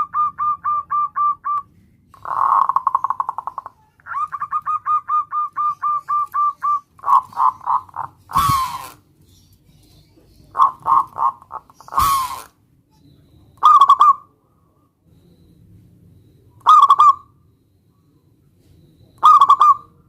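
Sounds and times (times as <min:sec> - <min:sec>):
dove cooing: 0:00.0 - 0:01.6, 0:02.2 - 0:09.0, 0:09.9 - 0:12.6, 0:13.6 - 0:14.4, 0:16.6 - 0:17.3, 0:19.2 - 0:20.0.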